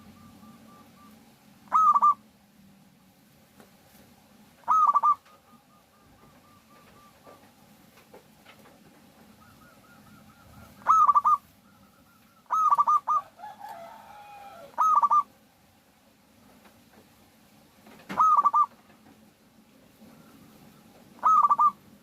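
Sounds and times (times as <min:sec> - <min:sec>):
doves cooing: 0:00.0 - 0:02.3, 0:04.6 - 0:15.4, 0:17.9 - 0:19.2, 0:19.8 - 0:22.0
low falling dove call: 0:00.0 - 0:02.3, 0:04.6 - 0:07.6, 0:09.2 - 0:15.3, 0:18.1 - 0:18.8, 0:20.0 - 0:22.0.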